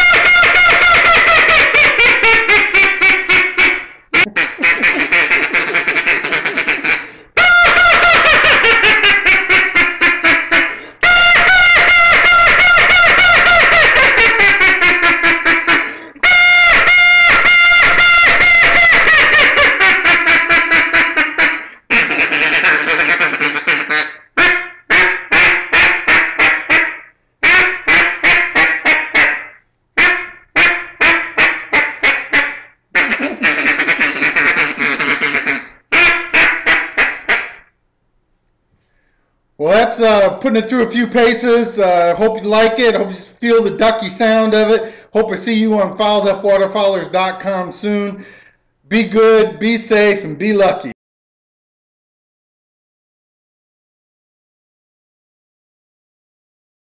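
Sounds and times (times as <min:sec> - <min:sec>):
duck call quacking: 0:00.0 - 0:37.7.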